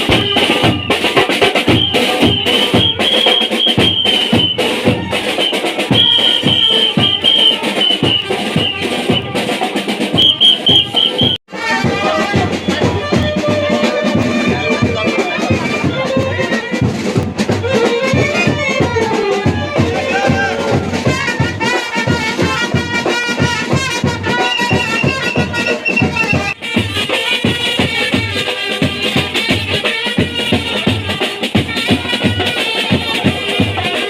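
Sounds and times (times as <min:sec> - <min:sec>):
steady drum beat: 0:00.0 - 0:34.0
wind instruments playing melody: 0:00.0 - 0:34.0.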